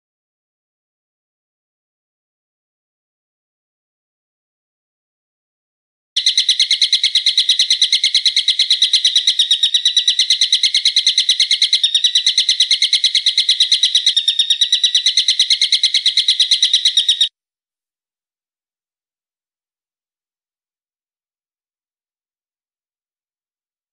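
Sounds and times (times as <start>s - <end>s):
songbird high trill: 6.2s - 17.3s.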